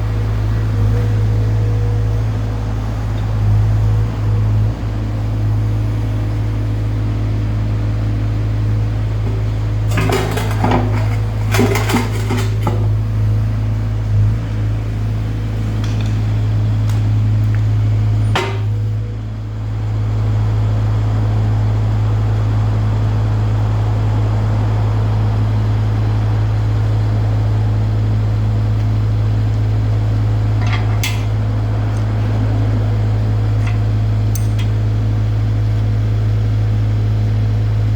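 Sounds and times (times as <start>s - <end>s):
excavator diesel engine droning: 0.0s - 37.9s
metal clanking and knocking: 9.2s - 13.2s, 18.3s - 18.8s, 30.5s - 34.8s.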